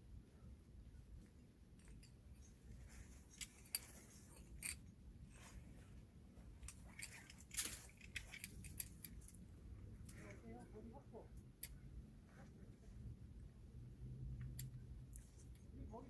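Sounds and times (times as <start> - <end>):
metallic clicks of carabiners: 1.7 - 4.9, 6.6 - 9.4, 11.4 - 11.9, 14.3 - 15.7.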